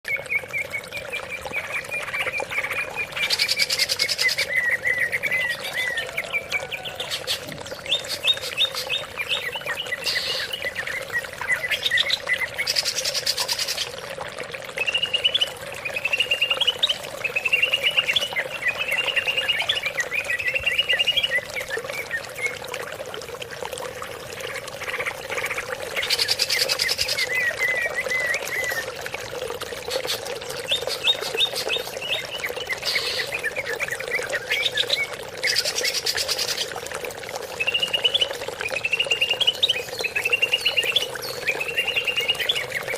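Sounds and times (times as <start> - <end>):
bird chirping and warbling: 0.1 - 14.0, 14.8 - 22.6, 24.4 - 29.0, 29.6 - 36.7, 37.5 - 42.9.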